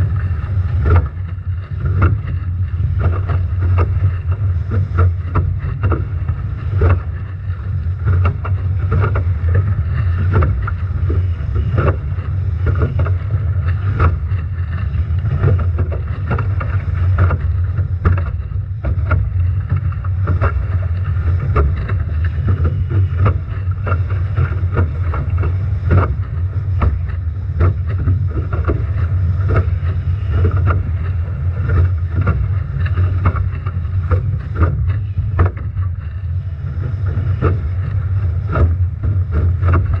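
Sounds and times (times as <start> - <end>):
strong wind on microphone: 0.0 - 1.3
waves slapping hulls: 0.0 - 40.0.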